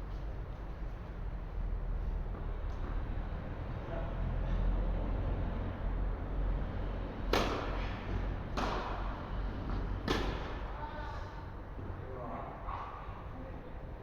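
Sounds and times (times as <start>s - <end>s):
steady low hum: 0.0s - 14.0s
tennis ball impacts: 7.2s - 10.7s.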